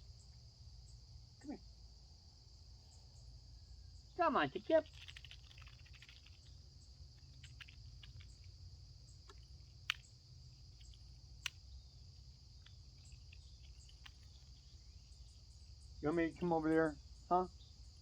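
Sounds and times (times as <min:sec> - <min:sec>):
insect trilling: 0:04.0 - 0:18.0
faint ticks and clicks: 0:04.6 - 0:15.6.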